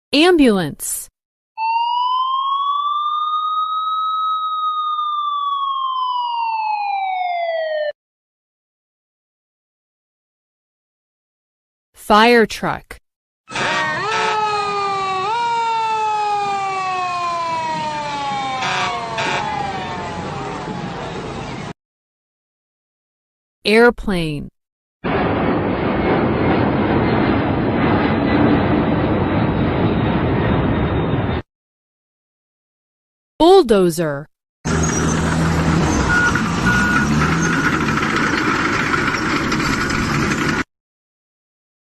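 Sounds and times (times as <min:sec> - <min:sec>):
ambulance siren wailing: 0:01.6 - 0:08.0, 0:13.5 - 0:21.8, 0:34.7 - 0:38.0
airplane engine noise: 0:13.5 - 0:21.7, 0:25.1 - 0:31.4.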